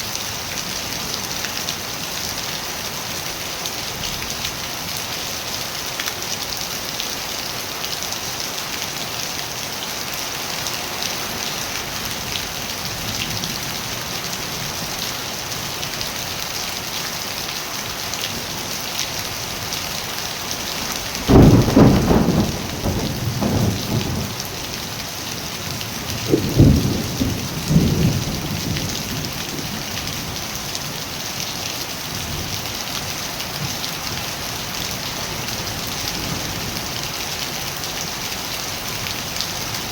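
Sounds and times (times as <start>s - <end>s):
steady rain falling: 0.0s - 39.9s
thunder rumbling: 20.9s - 24.9s, 25.8s - 29.8s.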